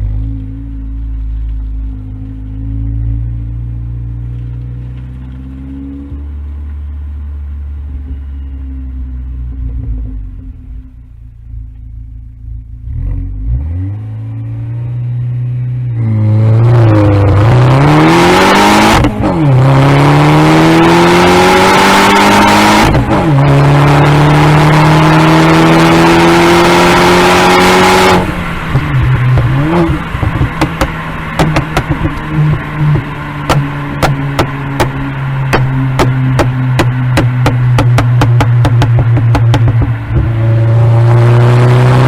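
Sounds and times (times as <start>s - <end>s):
exhaust pops and crackles: 0.0s - 7.0s, 18.8s - 19.7s, 28.0s - 41.2s
turbocharged car engine accelerating: 0.0s - 42.0s.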